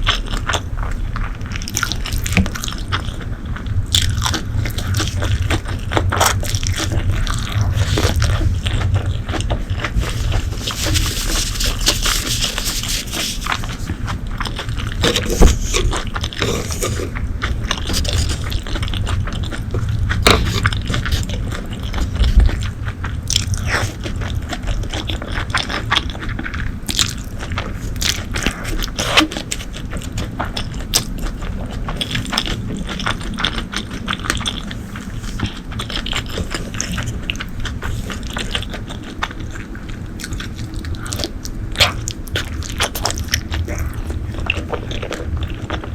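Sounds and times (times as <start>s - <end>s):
person chewing crunchy food: 0.0s - 45.9s.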